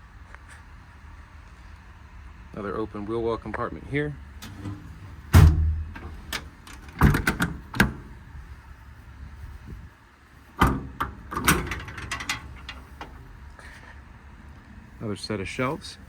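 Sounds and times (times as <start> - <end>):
metal compartment door latch clicking: 4.4 - 8.2, 10.6 - 13.3.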